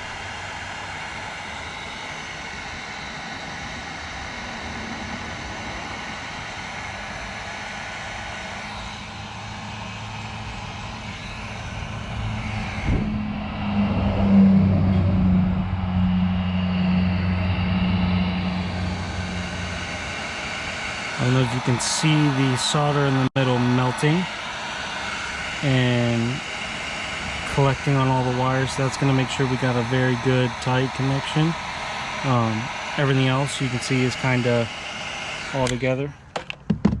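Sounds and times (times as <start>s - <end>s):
heat gun blowing: 14.3s - 36.4s.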